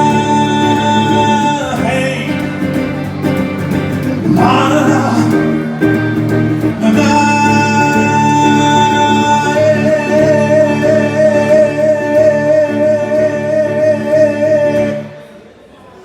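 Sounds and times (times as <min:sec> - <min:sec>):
live band holding a chord: 0:00.0 - 0:15.6
high note with vibrato: 0:06.7 - 0:15.4.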